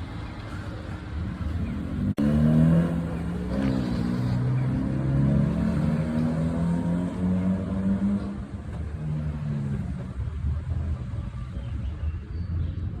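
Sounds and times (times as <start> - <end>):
small car engines running: 0.0 - 13.0.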